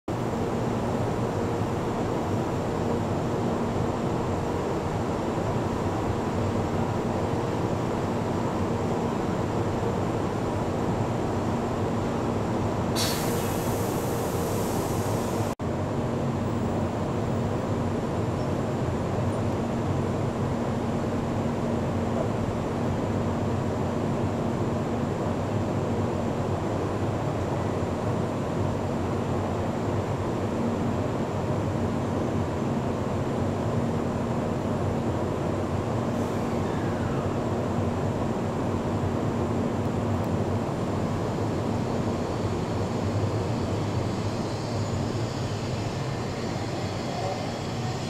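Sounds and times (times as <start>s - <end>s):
stationary train humming: 0.1s - 48.0s
high hiss: 12.9s - 15.6s, 41.0s - 48.0s.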